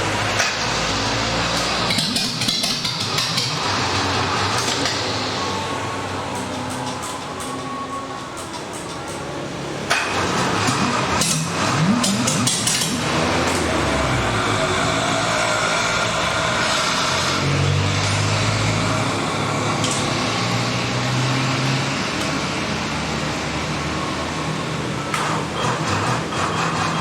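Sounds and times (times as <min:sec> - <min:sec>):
vehicle engine running: 0:00.0 - 0:04.9, 0:10.1 - 0:14.8.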